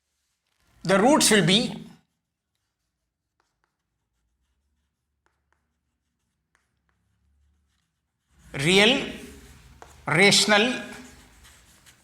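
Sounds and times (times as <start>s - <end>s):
pen writing ticks: 5.2s - 7.0s.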